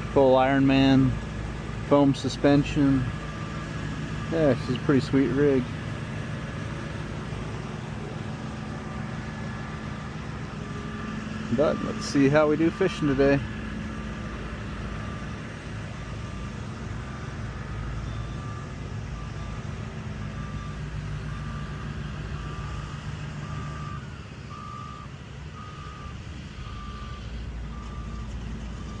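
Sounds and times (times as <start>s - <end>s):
car engine running: 0.0s - 25.0s
high electronic warning beep: 10.6s - 13.2s.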